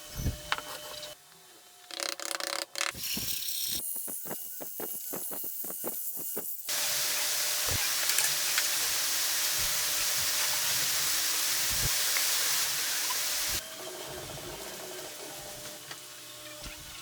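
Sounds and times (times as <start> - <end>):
loud steady hiss: 6.7 - 13.6.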